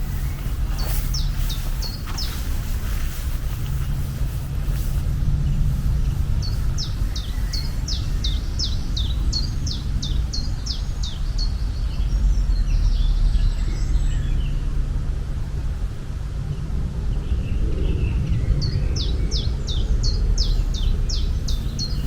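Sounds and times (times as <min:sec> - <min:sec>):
bird chirping: 0:00.0 - 0:14.7, 0:17.2 - 0:22.0
steady low rumble: 0:00.0 - 0:22.0.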